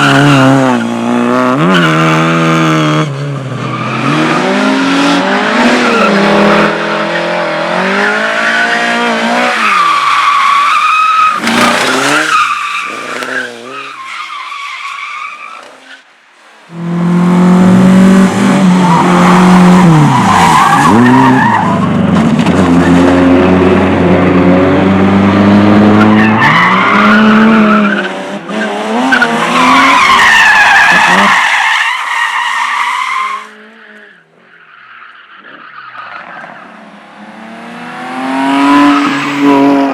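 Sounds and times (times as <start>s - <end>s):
car engines revving: 0.0s - 14.2s, 16.6s - 34.7s, 35.3s - 39.9s
tyres squealing: 9.5s - 15.6s.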